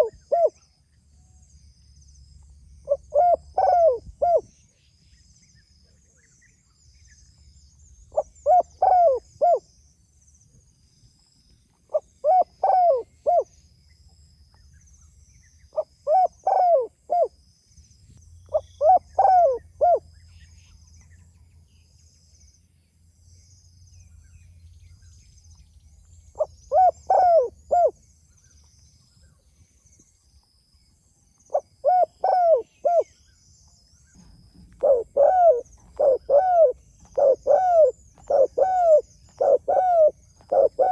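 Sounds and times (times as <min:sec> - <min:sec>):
dove cooing: 0:00.0 - 0:00.6, 0:02.9 - 0:04.5, 0:08.1 - 0:09.6, 0:11.9 - 0:13.5, 0:15.8 - 0:17.3, 0:18.5 - 0:20.0, 0:26.4 - 0:28.0, 0:31.5 - 0:33.1, 0:34.2 - 0:40.9
small birds twittering: 0:00.0 - 0:40.9.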